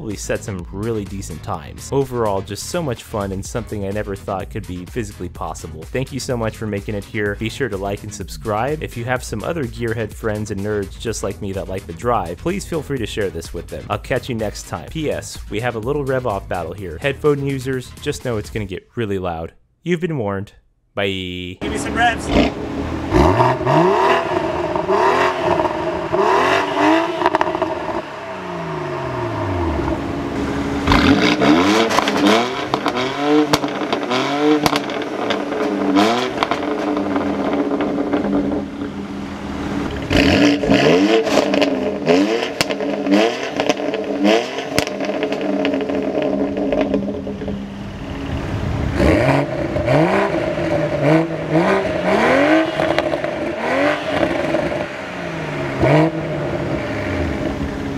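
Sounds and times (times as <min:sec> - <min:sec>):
car engine revving: 0:21.6 - 0:57.9
exhaust pops: 0:21.6 - 0:57.9.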